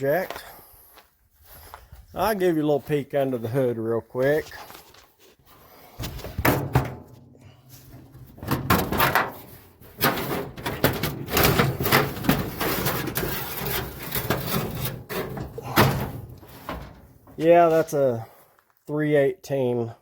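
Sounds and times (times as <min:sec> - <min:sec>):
metal hood clunking open: 0:06.4 - 0:07.2, 0:07.9 - 0:17.4.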